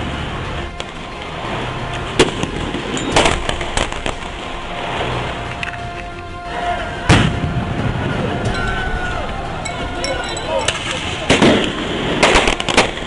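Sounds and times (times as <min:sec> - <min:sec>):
music: 0:00.0 - 0:13.0
noisy rumble: 0:00.0 - 0:13.0
sharp bangs: 0:02.1 - 0:04.5, 0:10.7 - 0:13.0.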